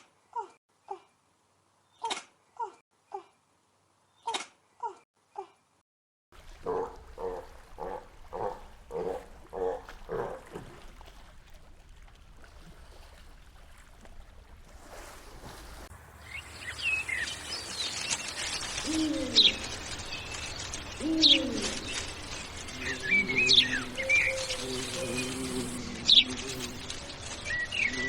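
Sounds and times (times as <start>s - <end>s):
birds chirping: 6.6s - 10.6s, 16.0s - 28.0s
low falling coo: 18.6s - 20.0s, 20.8s - 28.0s.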